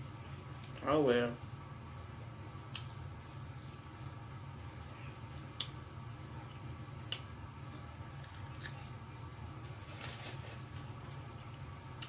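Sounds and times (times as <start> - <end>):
steady low hum: 0.0 - 12.0
crunchy rustle: 9.6 - 10.8.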